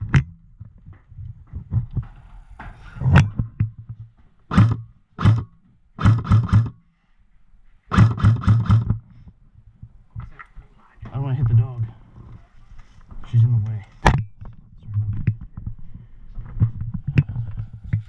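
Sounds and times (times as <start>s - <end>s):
airsoft gun shots: 4.5s - 6.8s, 7.9s - 9.0s.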